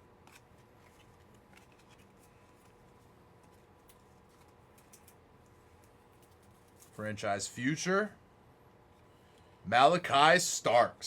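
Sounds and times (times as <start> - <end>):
trading cards clicking: 3.8 - 5.2.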